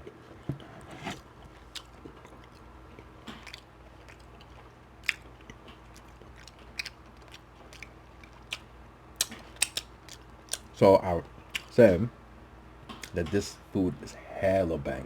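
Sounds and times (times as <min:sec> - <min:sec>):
chewing meat: 0:00.0 - 0:10.8, 0:11.4 - 0:11.8
faint low hum: 0:00.0 - 0:15.0
wet mouth clicks and smacks: 0:01.6 - 0:10.7.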